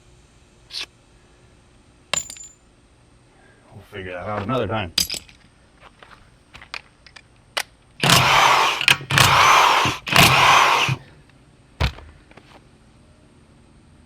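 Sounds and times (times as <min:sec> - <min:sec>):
impact wrench bursts: 0:08.0 - 0:11.0
single knock: 0:11.8 - 0:12.2.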